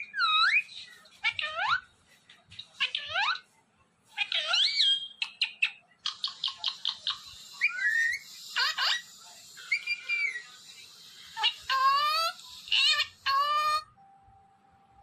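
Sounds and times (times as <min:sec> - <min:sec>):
parrot whistling and chirping: 0:00.0 - 0:01.8, 0:04.2 - 0:10.7, 0:11.3 - 0:13.9.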